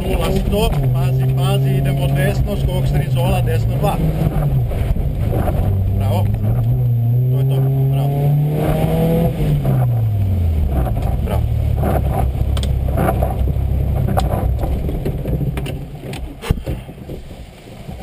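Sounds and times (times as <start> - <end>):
rally car engine rumbling: 0.0 - 18.0.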